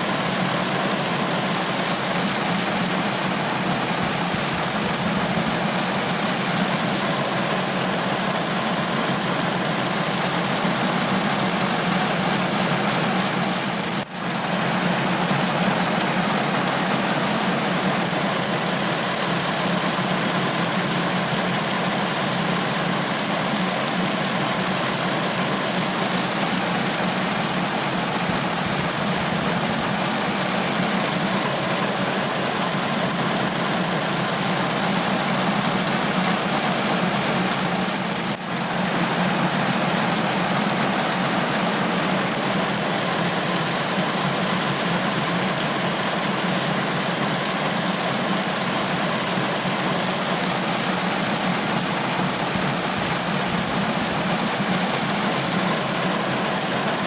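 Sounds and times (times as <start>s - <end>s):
heavy rain drumming on a car roof: 0.0s - 57.0s.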